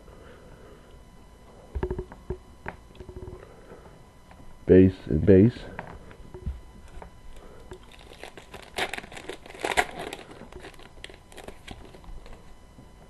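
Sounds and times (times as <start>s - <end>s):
foil wrapper crinkling and tearing: 7.7s - 12.5s.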